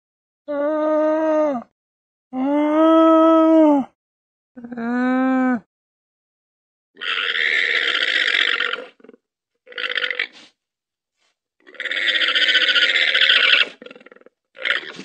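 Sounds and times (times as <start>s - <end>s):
llama harsh raspy calls: 7.0s - 10.5s, 11.6s - 15.0s.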